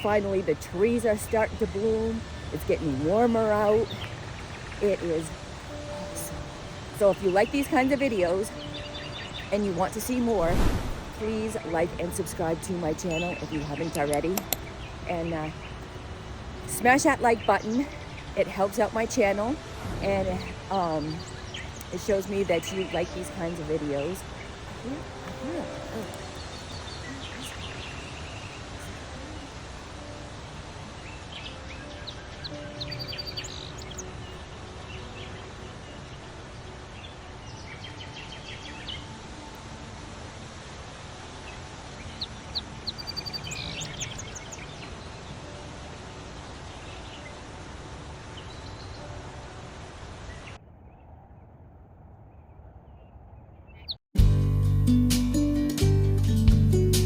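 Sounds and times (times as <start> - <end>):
songbirds chirping and singing: 0.0 - 49.5, 52.4 - 54.0
outdoor background hiss: 0.0 - 51.3
acoustic guitar music: 11.4 - 30.8.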